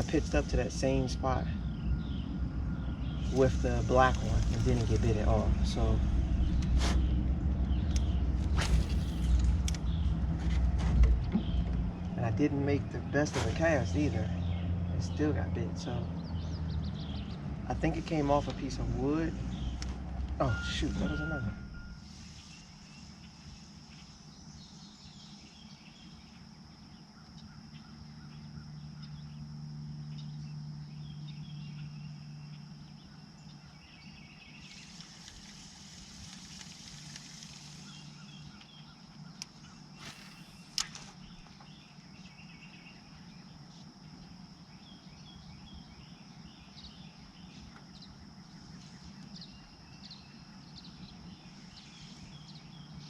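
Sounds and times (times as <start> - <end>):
high-pitched drone: 0.0 - 6.6, 20.4 - 22.2
bird chirps: 0.0 - 53.0
low hum: 0.0 - 53.0
sharp clicks: 7.8 - 10.0, 39.4 - 41.5.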